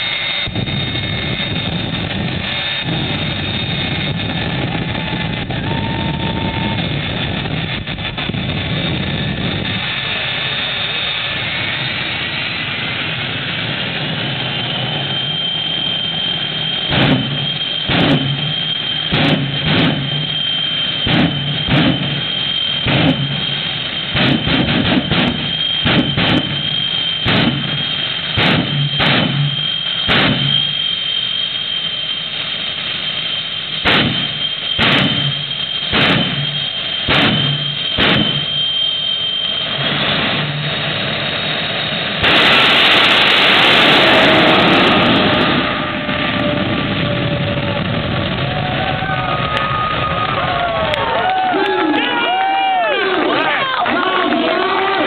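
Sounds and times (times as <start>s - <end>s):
sharp loud bursts with rumble: 0.0s - 51.2s
turbine engine whine: 0.0s - 55.0s.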